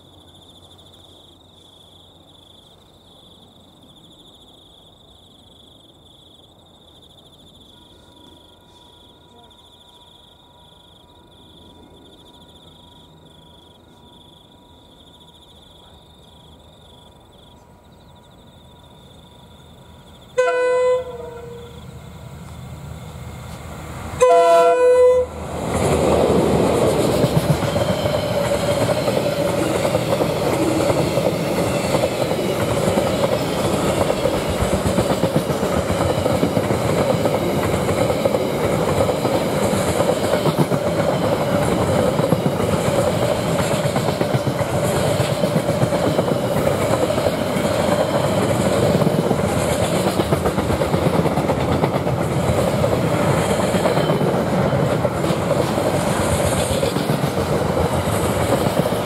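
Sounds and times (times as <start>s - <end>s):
train wagons rumbling on rails: 19.8s - 59.0s
train horn blast: 20.4s - 21.9s, 24.2s - 25.5s.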